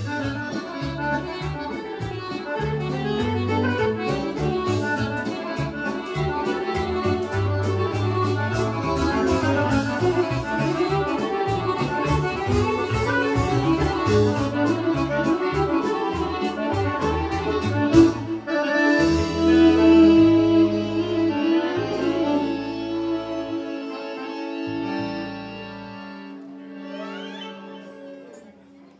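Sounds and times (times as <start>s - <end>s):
folk orchestra dance music: 0.0s - 28.9s.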